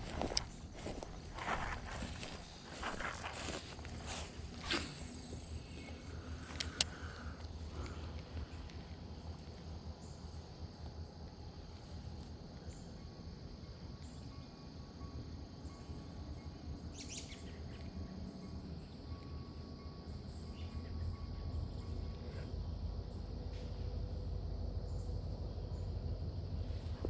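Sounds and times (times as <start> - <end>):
low rumble: 0.0 - 9.5
insects chirping: 0.0 - 27.0
bird-like chirps: 16.9 - 17.9.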